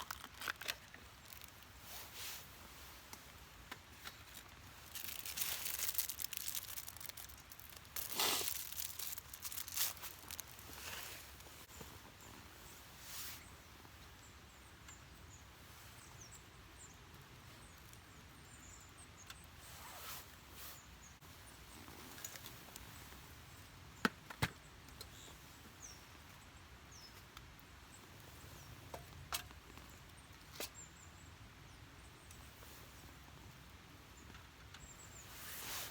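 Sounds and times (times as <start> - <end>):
campfire crackling: 0.0 - 11.7
fire popping sharply: 5.5 - 10.8.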